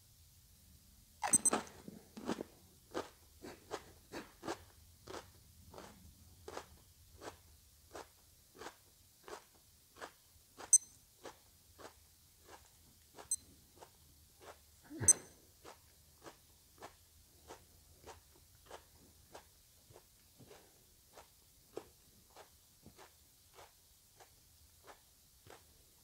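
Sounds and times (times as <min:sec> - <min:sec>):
sharp high clicks: 0:01.2 - 0:01.6
chewing crunchy pepper: 0:01.2 - 0:25.7.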